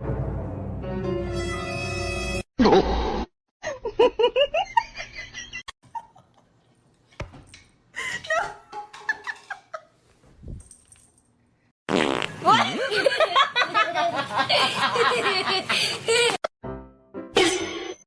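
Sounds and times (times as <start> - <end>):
person laughing: 12.4 - 16.5.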